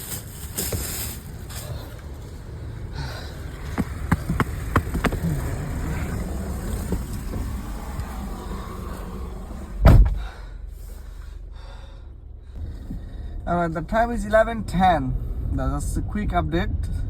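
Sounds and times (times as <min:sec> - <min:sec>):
car engine idling: 0:00.0 - 0:17.0
car door slamming: 0:03.2 - 0:10.4
sharp clicks and knocks: 0:03.6 - 0:08.1.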